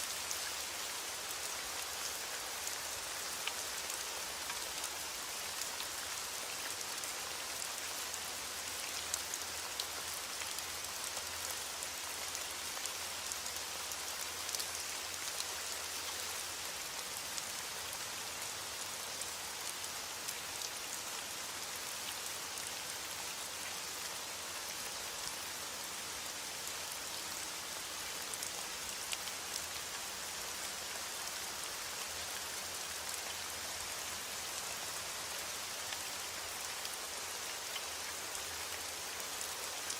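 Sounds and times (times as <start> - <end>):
steady rain hiss: 0.0 - 39.9
raindrops ticking on a surface: 0.1 - 18.3, 26.9 - 39.9.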